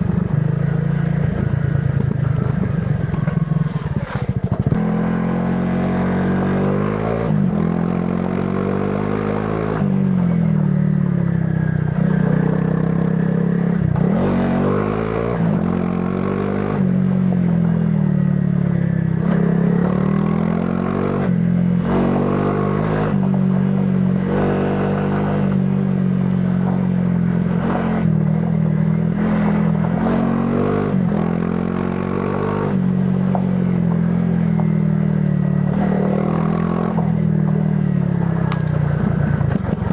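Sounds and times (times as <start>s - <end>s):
bike rattling and scraping: 0.0s - 4.8s, 33.0s - 39.9s
motorbike engine revving: 0.0s - 18.0s, 19.1s - 39.9s.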